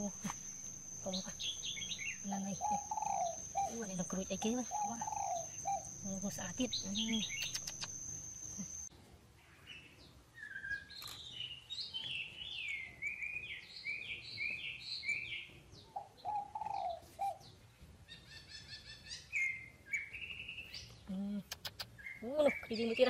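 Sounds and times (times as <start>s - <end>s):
small bird chirping: 0.0s - 23.0s.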